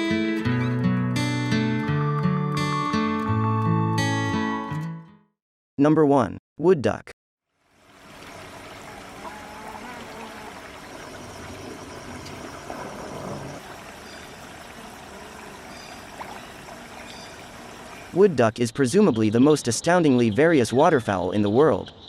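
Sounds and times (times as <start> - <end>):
flowing water: 7.5 - 18.4.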